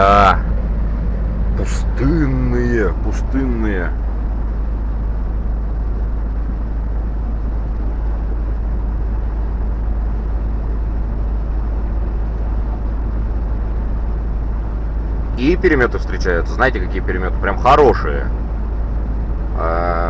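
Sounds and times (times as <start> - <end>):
truck engine and road noise: 0.0 - 20.0.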